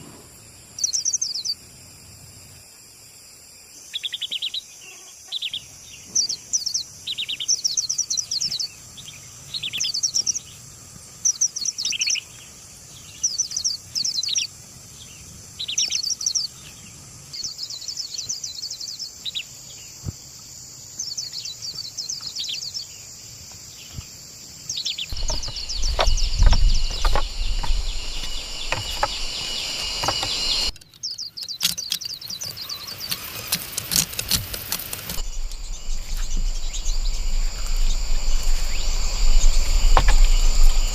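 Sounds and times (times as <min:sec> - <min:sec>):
birds chirping: 0:00.0 - 0:40.9
insect hiss: 0:00.0 - 0:40.9
low rumble: 0:25.1 - 0:30.8, 0:35.1 - 0:40.9.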